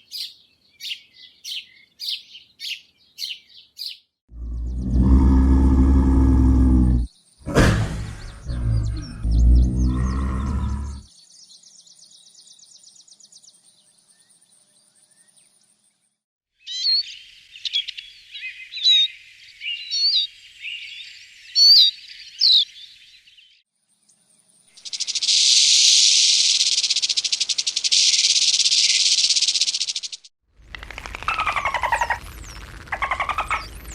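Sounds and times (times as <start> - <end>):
whistled bird calls: 0.0 - 4.0, 16.6 - 22.9, 31.1 - 33.9.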